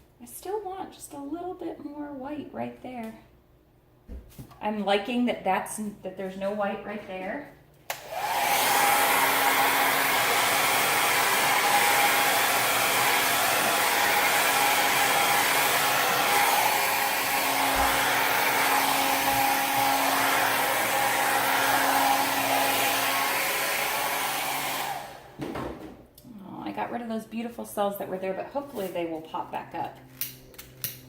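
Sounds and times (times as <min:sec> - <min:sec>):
hair dryer blowing: 0:07.9 - 0:25.4.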